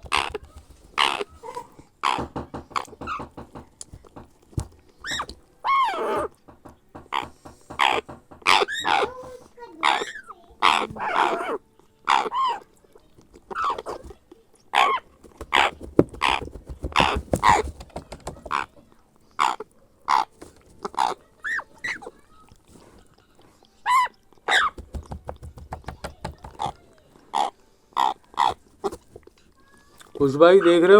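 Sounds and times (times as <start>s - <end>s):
parrot chick begging calls: 0.0s - 1.3s, 2.0s - 3.3s, 5.0s - 6.3s, 7.1s - 9.2s, 9.8s - 12.6s, 13.5s - 14.0s, 14.7s - 16.4s, 19.4s - 20.3s, 23.8s - 24.9s, 26.4s - 29.0s.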